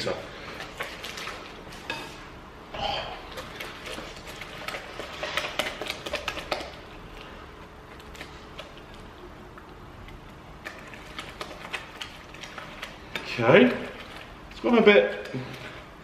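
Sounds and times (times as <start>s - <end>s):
utensil scraping and clicking bowl: 3.2s - 7.3s, 7.9s - 15.7s.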